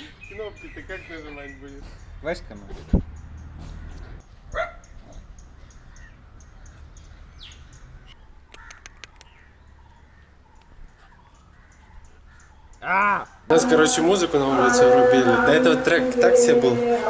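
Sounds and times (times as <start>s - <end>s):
crow cawing: 8.5s - 13.4s.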